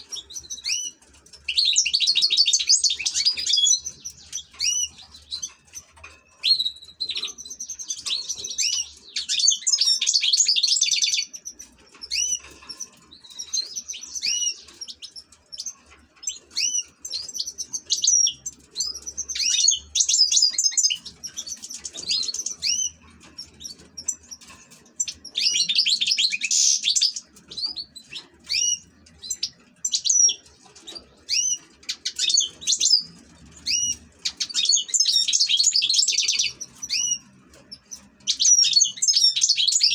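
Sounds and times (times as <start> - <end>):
goldfinch singing: 0.0 - 39.9.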